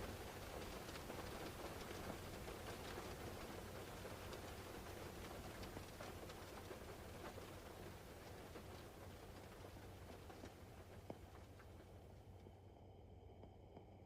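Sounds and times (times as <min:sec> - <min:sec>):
rain pattering: 0:00.0 - 0:12.7
steady low rumble: 0:08.6 - 0:14.0.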